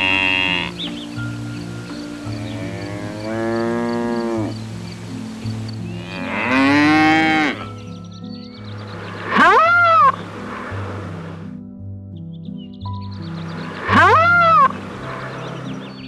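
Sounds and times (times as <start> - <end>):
cows mooing: 0.0 - 0.8, 2.3 - 4.6, 5.9 - 7.7, 9.3 - 10.2, 13.8 - 14.7.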